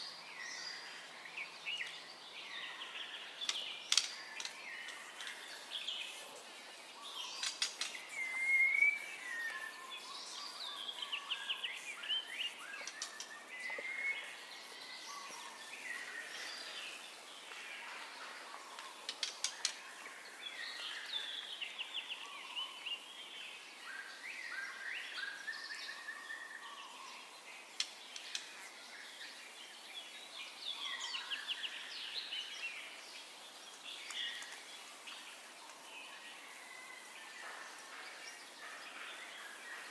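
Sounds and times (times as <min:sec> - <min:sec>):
faint steady hiss: 0:00.0 - 0:39.9
bird singing whistled song: 0:07.2 - 0:15.3.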